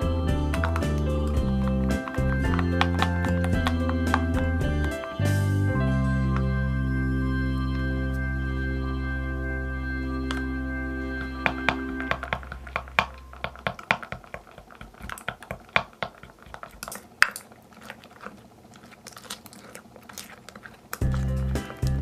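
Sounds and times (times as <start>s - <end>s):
background music: 0.0s - 13.5s, 21.0s - 22.0s
slime sticky clicks and crackles: 12.5s - 21.8s.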